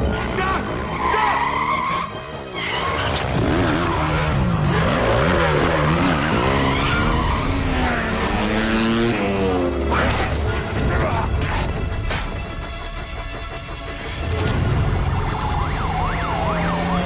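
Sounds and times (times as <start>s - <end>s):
tyres skidding: 0.0s - 17.0s
motorcycle engine revving: 2.9s - 10.0s.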